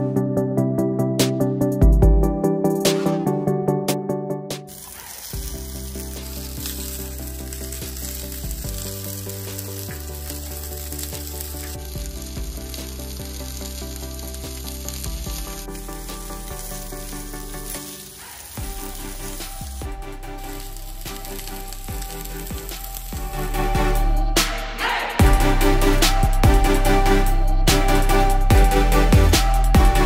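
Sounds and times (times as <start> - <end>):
background music: 0.0 - 30.0
vegetables sizzling as they fry: 4.7 - 23.6.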